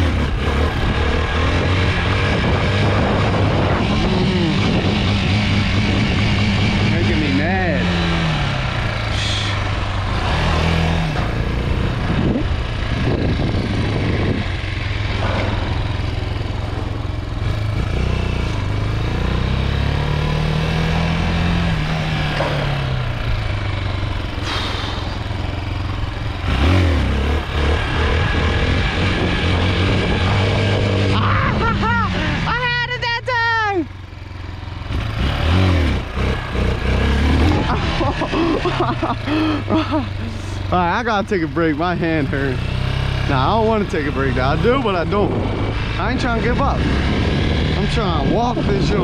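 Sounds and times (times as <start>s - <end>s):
dirt bike engine revving: 0.0s - 33.0s, 33.6s - 49.0s
man complaining: 6.9s - 8.2s, 9.0s - 9.6s, 31.0s - 33.9s, 37.6s - 45.4s.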